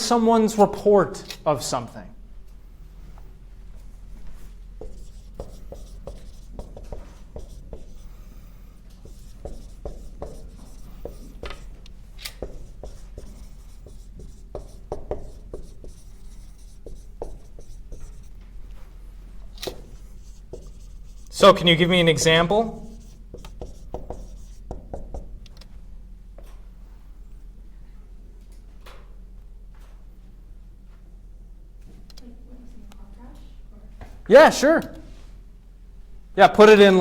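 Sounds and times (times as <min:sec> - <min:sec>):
steady low hum: 0:00.0 - 0:37.0
writing strokes on a board: 0:04.4 - 0:18.4, 0:19.7 - 0:21.8, 0:22.4 - 0:25.4.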